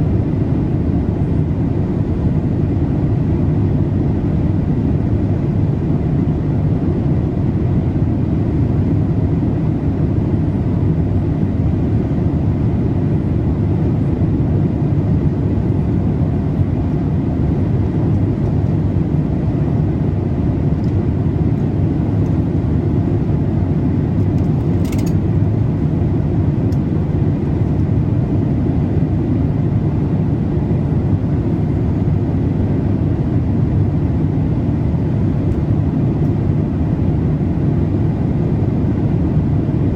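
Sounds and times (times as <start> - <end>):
aircraft cabin rush: 23.8 - 25.5.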